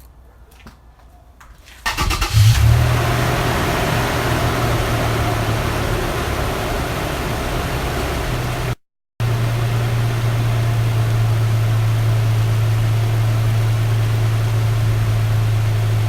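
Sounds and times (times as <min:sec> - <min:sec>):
starter cranking engine: 0:01.9 - 0:02.8
engine idling: 0:01.9 - 0:16.0.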